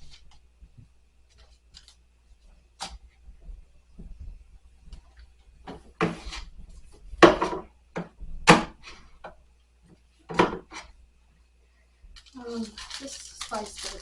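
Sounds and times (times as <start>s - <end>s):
items knocking and clattering on shelves: 5.6s - 9.4s, 10.3s - 10.9s.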